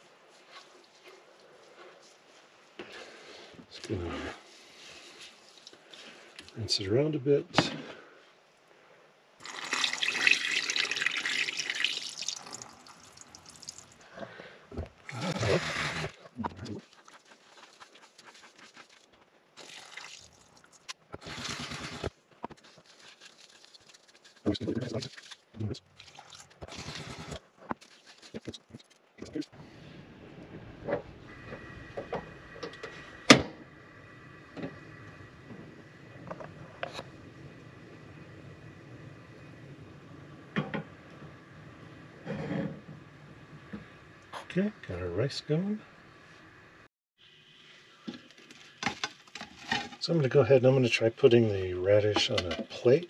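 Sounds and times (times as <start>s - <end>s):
water running from faucet: 9.4s - 13.9s, 19.6s - 20.6s
faint steady hum: 29.6s - 49.1s.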